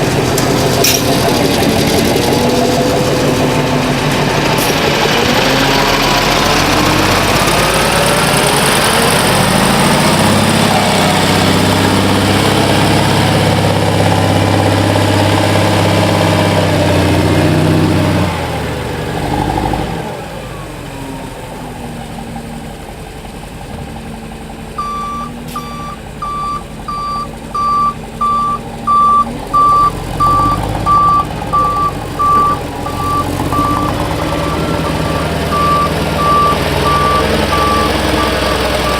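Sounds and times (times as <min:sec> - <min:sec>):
dump truck diesel engine: 0:00.0 - 0:38.9
reversing alarm beeping: 0:24.8 - 0:38.9.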